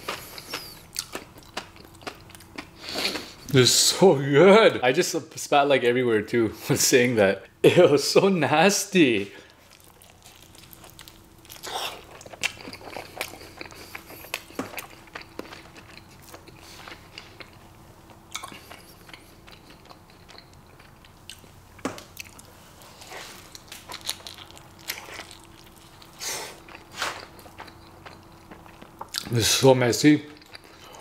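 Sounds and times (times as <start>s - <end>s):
person chewing food: 0.0s - 3.5s, 9.4s - 29.3s, 30.3s - 31.0s.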